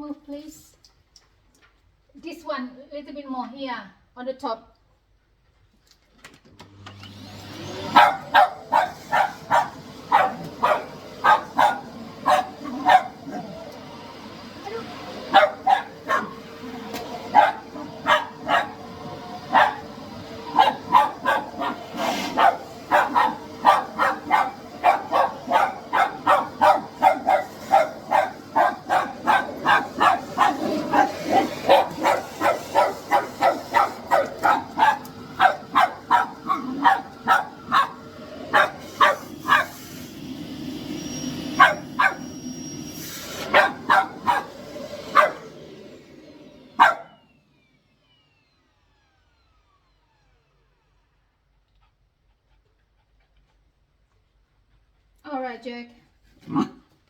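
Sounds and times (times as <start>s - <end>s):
vacuum cleaner humming: 6.6s - 51.0s
dog barking rapidly: 7.9s - 13.5s, 15.1s - 16.5s, 17.2s - 39.8s, 41.6s - 42.3s, 43.4s - 45.5s, 46.8s - 47.2s.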